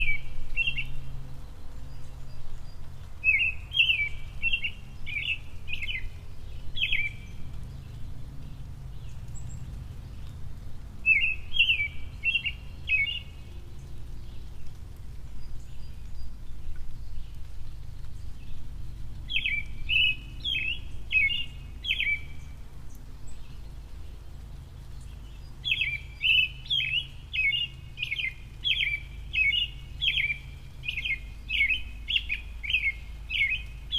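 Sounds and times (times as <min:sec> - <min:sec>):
low steady hum: 0:00.0 - 0:33.9
songbird chirping: 0:00.0 - 0:33.9.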